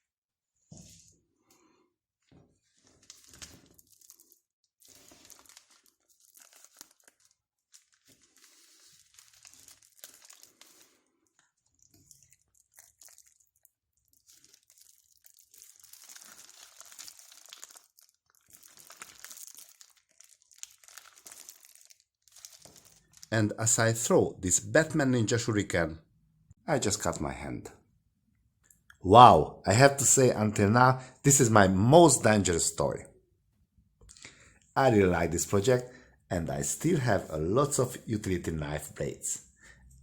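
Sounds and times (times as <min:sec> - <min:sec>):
crinkling and rustling: 0:02.2 - 0:23.3.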